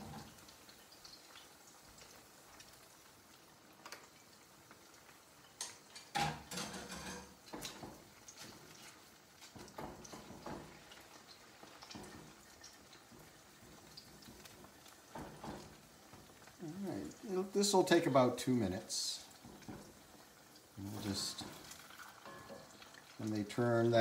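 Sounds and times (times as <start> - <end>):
chicken sizzling in oil: 0.0 - 24.0
spatula knocking and scraping wok: 6.1 - 16.4, 19.4 - 20.2, 21.2 - 22.8.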